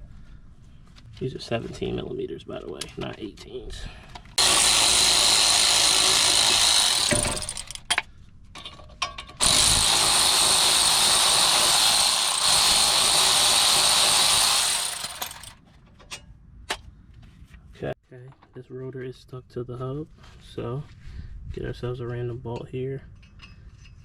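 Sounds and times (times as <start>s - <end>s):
power wrench spinning bolts: 4.4s - 8.0s, 9.4s - 15.6s.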